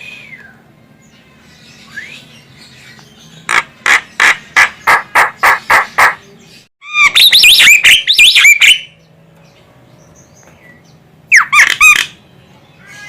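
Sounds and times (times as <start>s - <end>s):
bird squawking and whistling: 1.8s - 2.4s, 6.8s - 8.9s, 11.3s - 12.2s.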